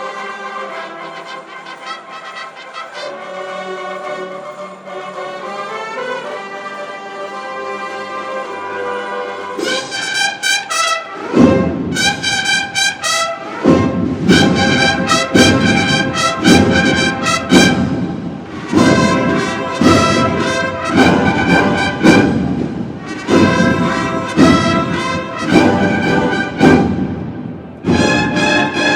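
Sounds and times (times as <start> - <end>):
cornet and drum band march: 0.0 - 28.9
heavy drum strokes: 11.1 - 28.9.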